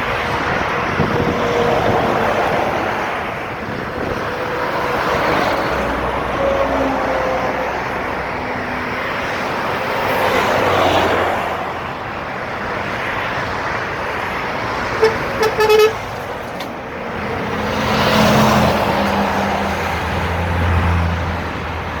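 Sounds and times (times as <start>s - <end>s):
road traffic passing: 0.0s - 22.0s
car horn toots: 15.0s - 16.2s.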